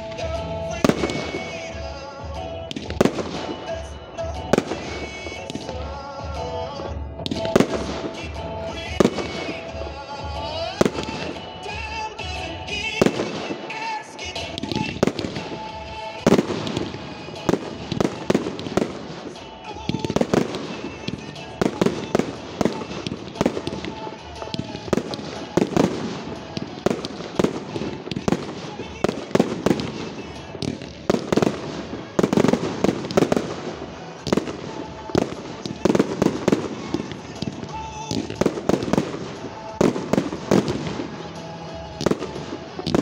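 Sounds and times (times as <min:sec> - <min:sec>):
show music: 0:00.0 - 0:43.0
firework shells bursting: 0:12.6 - 0:43.0.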